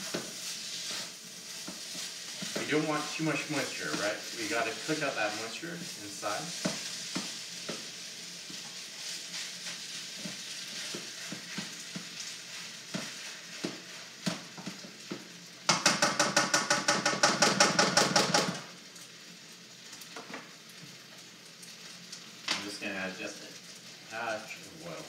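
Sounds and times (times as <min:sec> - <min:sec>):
spatula clacking: 0:00.0 - 0:18.4
rice sizzling in a wok: 0:00.0 - 0:25.0.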